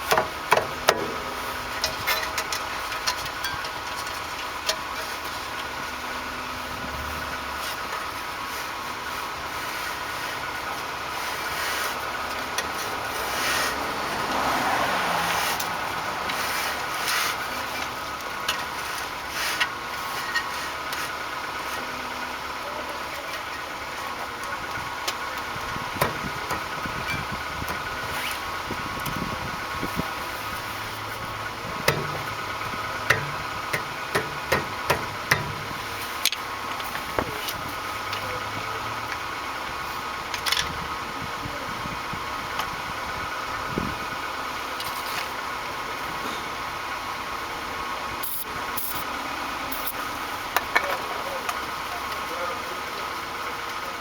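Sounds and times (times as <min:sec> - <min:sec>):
steady mechanical hum: 0:15.4 - 0:54.0
tools knocking on metal: 0:31.8 - 0:32.4, 0:33.1 - 0:35.8.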